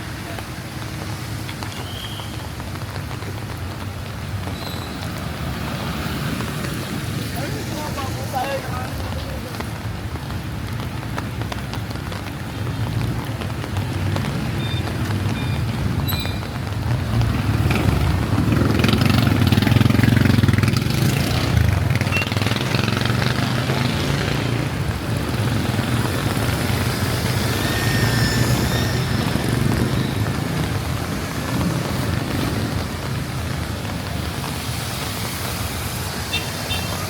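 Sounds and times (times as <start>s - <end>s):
heavy rain hiss: 0.0s - 37.0s
vehicle passing: 17.0s - 37.0s.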